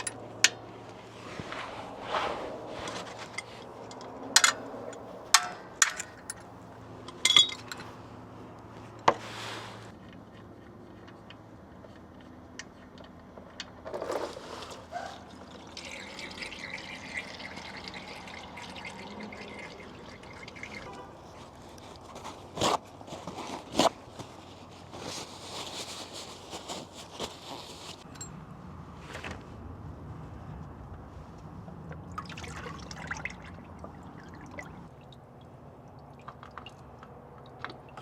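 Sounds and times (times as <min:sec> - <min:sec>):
oil draining into a pan: 0:15.2 - 0:20.9.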